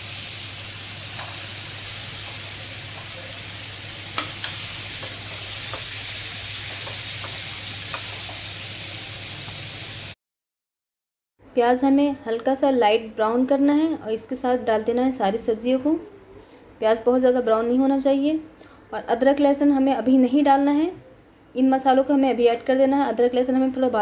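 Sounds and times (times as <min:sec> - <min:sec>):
onion sizzling in a frying pan: 0:00.0 - 0:10.2.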